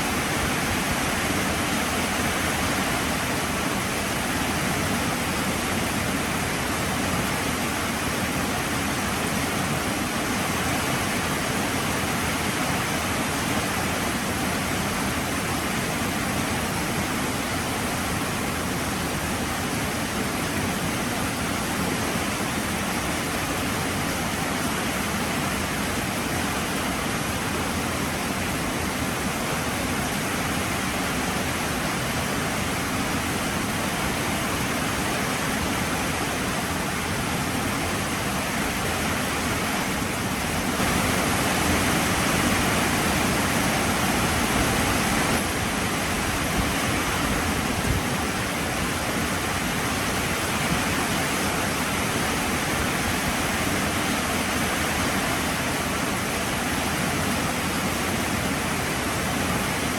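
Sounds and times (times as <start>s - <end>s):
heavy rain falling: 21.6s - 59.9s.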